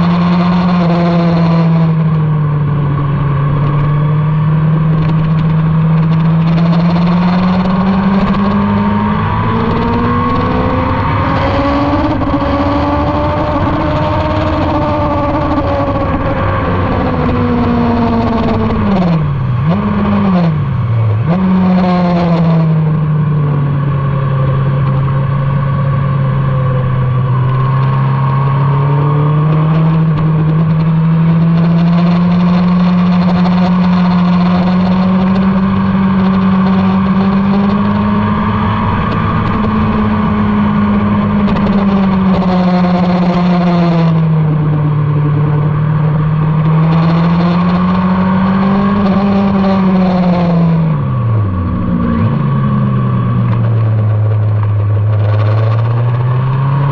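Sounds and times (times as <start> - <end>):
motorcycle engine revving: 0.0 - 56.9
wind rush: 27.0 - 56.9.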